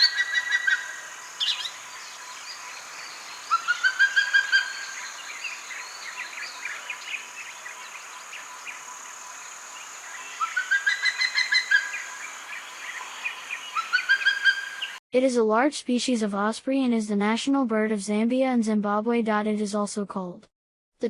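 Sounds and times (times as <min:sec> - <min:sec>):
bird chirps: 0:00.0 - 0:15.0
bird yelping calls: 0:00.0 - 0:15.0
high-pitched hiss: 0:04.7 - 0:13.7.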